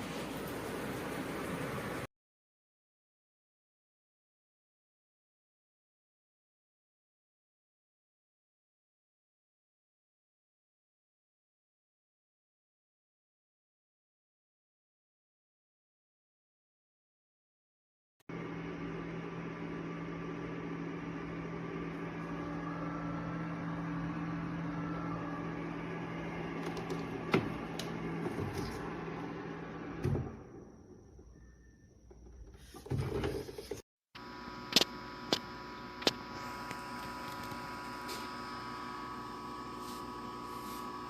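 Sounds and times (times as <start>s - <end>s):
dehumidifier fan hum: 18.3s - 30.6s.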